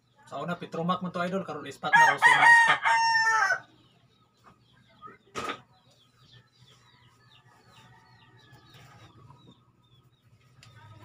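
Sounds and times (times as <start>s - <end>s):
small bird chirping: 3.6s - 11.0s.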